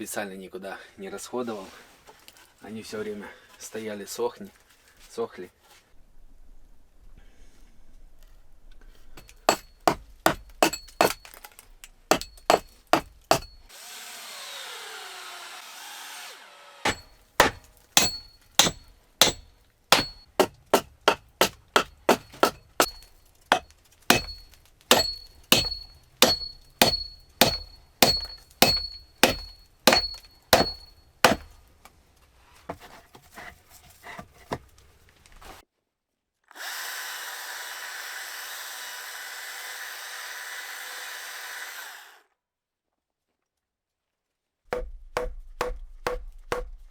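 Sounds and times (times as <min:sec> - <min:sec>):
hand tool striking wood: 0:09.2 - 0:13.7, 0:16.8 - 0:31.6, 0:44.7 - 0:46.8.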